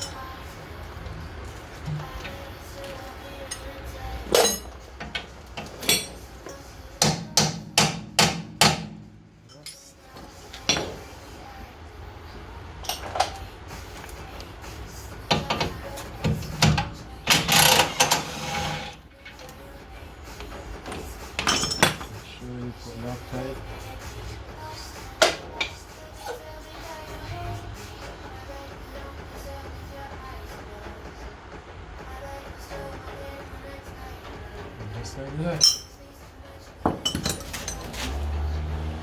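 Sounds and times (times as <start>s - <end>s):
tools knocking on metal: 4.3s - 9.1s, 15.3s - 18.7s, 36.8s - 37.8s.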